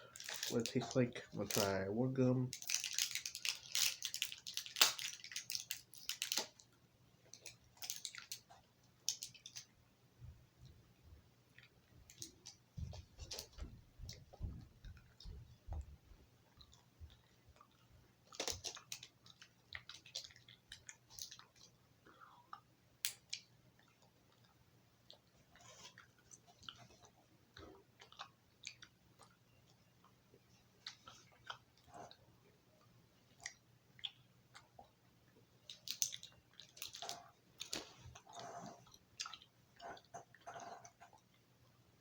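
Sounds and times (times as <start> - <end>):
gum packaging crackling: 0.0 - 1.8, 2.5 - 6.7, 7.3 - 9.7, 18.3 - 21.7, 35.7 - 37.9
person chewing gum: 16.4 - 30.2, 30.8 - 32.2, 33.3 - 35.1, 35.7 - 41.4.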